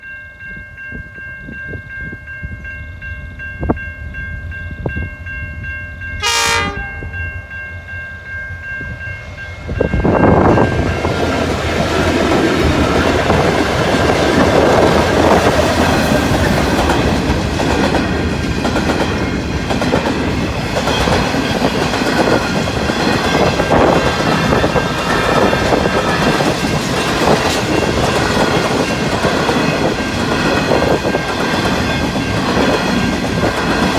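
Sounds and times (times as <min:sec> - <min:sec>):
diesel locomotive passing: 0:00.4 - 0:33.9
train horn chord: 0:06.2 - 0:07.4.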